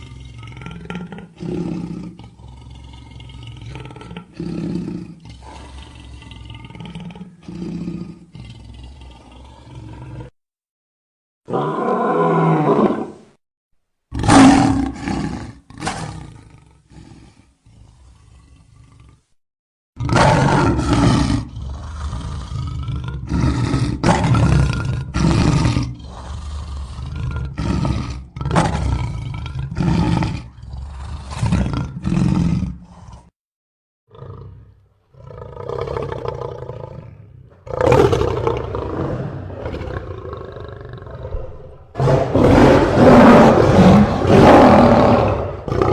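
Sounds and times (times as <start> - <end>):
monster roars and growls: 37.6 - 45.9.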